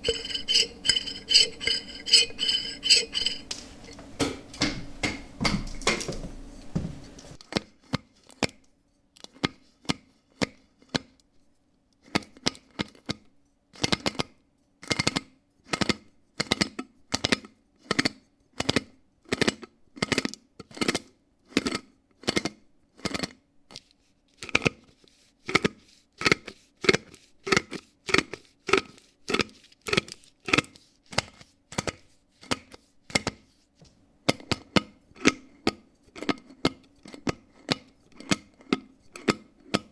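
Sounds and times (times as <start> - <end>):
faint steady hum: 0.0 - 4.8.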